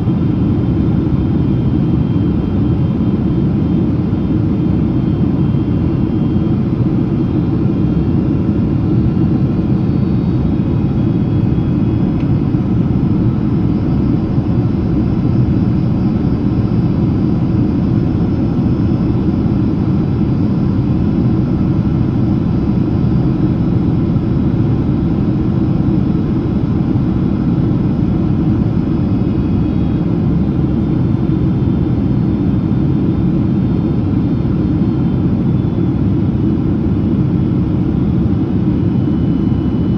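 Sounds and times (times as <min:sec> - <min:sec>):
aircraft cabin engine rumble: 0:00.0 - 0:39.9
faint whine tones: 0:05.0 - 0:32.4.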